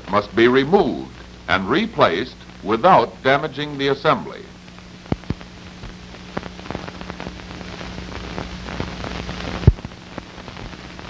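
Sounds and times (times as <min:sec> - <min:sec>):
film soundtrack crackle and clicks: 0:00.0 - 0:11.0
steady low hum: 0:00.0 - 0:11.0.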